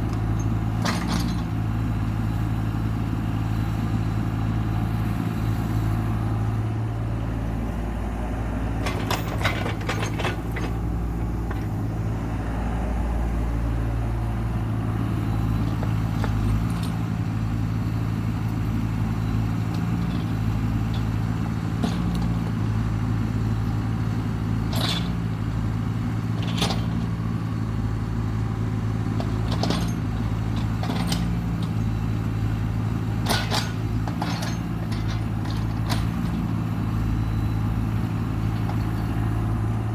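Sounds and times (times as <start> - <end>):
heavy machine engine droning: 0.0 - 39.9
machine clanks and knocks: 0.1 - 1.6, 8.8 - 11.7, 19.7 - 22.6, 24.7 - 25.3, 26.3 - 27.2, 29.1 - 32.0, 33.2 - 36.6.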